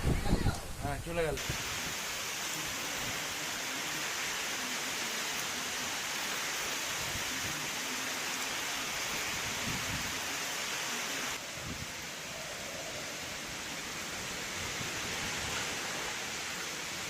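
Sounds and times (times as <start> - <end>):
wind buffeting microphone: 0.0 - 1.6
strong wind: 0.0 - 2.0, 9.0 - 10.4, 11.3 - 17.0
heavy rain: 0.0 - 17.0.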